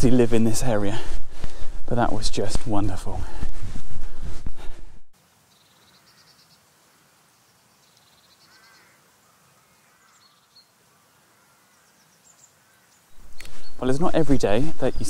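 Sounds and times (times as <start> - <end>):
distant bird calls: 5.4 - 15.0.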